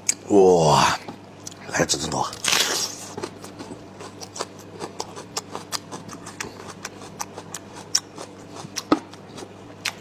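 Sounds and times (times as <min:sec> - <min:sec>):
chewing and lip smacking: 0:02.5 - 0:10.0.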